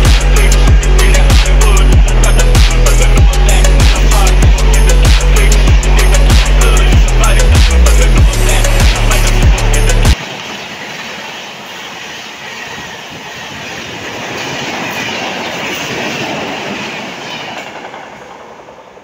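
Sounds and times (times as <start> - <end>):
music: 0.0 - 10.2
train wheels rumbling past: 10.2 - 19.0.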